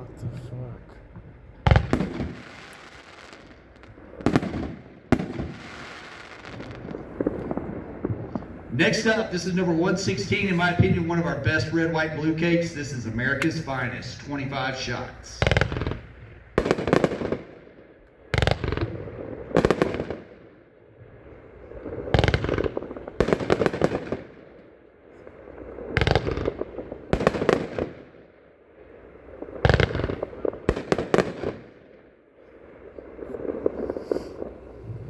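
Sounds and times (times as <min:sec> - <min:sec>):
fireworks bangs: 0:00.0 - 0:35.0
fireworks crackling: 0:00.0 - 0:35.0.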